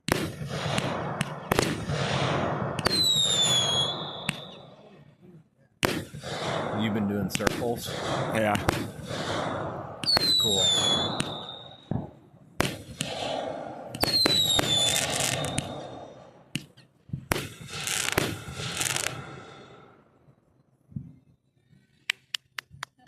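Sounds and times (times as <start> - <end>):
firework crackling: 0.0 - 4.8, 5.8 - 19.8
fireworks bangs: 0.0 - 5.1, 5.8 - 19.9
falling firework whistle: 0.4 - 4.8, 9.1 - 12.0, 13.0 - 16.2.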